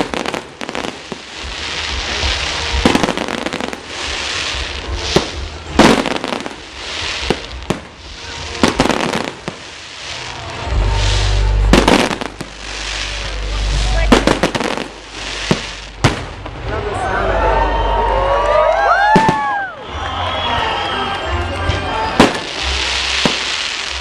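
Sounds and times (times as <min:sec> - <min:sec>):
fireworks bangs: 0:00.0 - 0:17.1, 0:19.0 - 0:24.0
crackling hiss of fireworks: 0:00.0 - 0:24.0
low rumble: 0:10.1 - 0:18.1.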